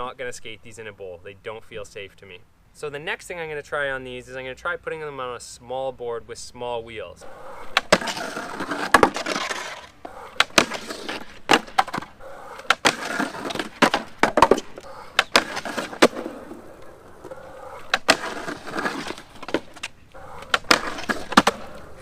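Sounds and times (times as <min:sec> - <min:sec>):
skateboard rolling on concrete: 0:07.2 - 0:22.0
skateboard clacks: 0:07.4 - 0:22.0.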